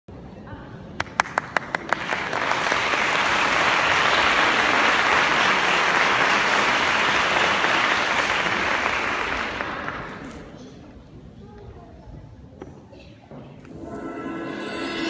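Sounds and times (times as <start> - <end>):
audience applauding: 1.0 - 10.5.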